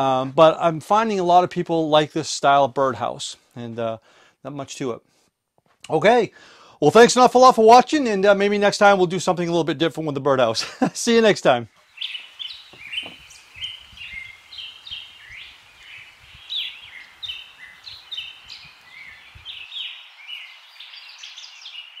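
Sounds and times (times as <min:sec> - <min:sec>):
songbirds chirping: 0:11.4 - 0:22.0.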